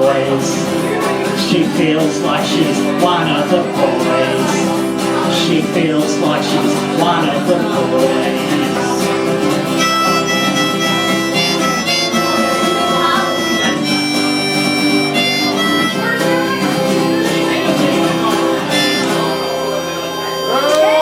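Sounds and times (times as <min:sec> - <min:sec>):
live country band playing: 0:00.0 - 0:21.0
crowd cheering and whistling: 0:09.8 - 0:21.0.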